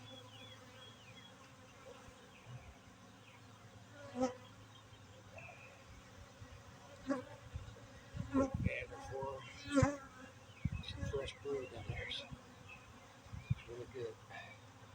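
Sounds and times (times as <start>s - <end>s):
bees flying past: 0.0s - 14.9s
honeybees buzzing: 0.0s - 14.9s.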